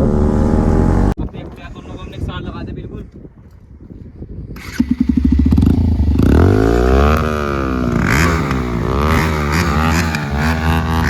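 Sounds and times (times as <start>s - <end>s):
motorcycle engine revving: 0.0s - 1.2s, 4.6s - 11.0s.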